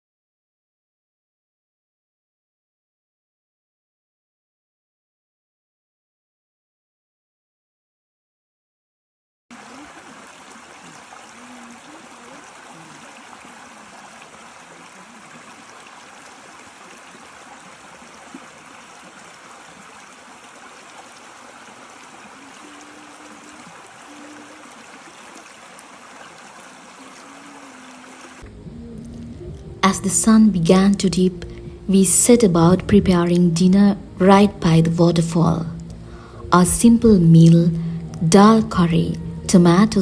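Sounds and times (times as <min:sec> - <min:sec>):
waterfall rushing: 0:09.5 - 0:28.4.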